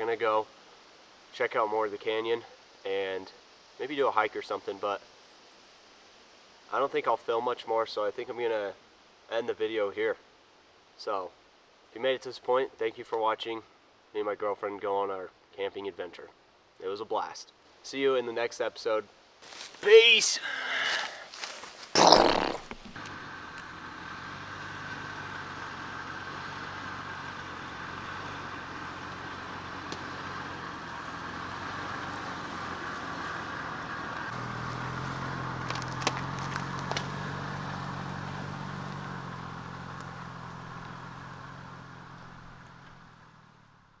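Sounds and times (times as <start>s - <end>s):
road noise: 19.4s - 44.0s
vehicle engine running: 23.0s - 44.0s.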